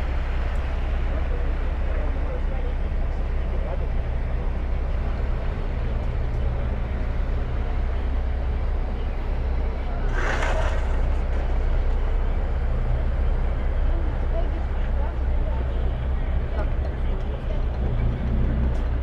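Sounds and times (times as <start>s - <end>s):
boat engine rumbling: 0.0s - 19.0s
brief rush of noise: 10.1s - 11.3s.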